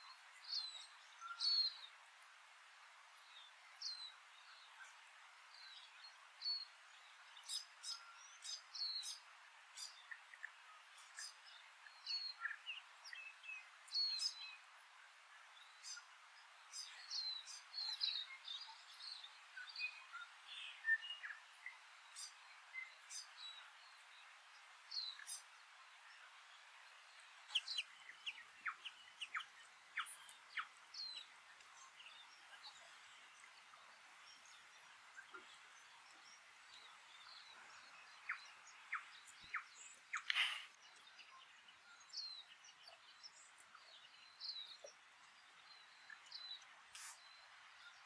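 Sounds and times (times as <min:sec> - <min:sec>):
faint steady hiss: 0:00.0 - 0:48.0
bird warbling song: 0:09.8 - 0:14.6, 0:27.0 - 0:48.0.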